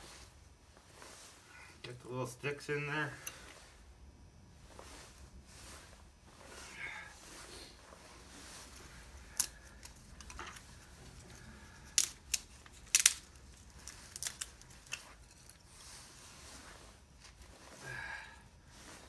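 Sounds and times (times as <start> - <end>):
kindling sticks clicking together: 9.2 - 15.6.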